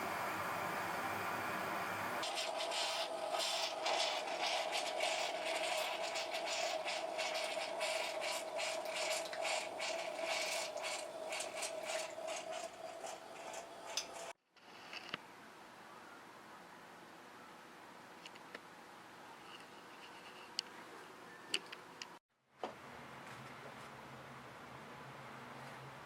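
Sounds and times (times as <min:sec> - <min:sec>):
steady hum: 0:00.0 - 0:03.4.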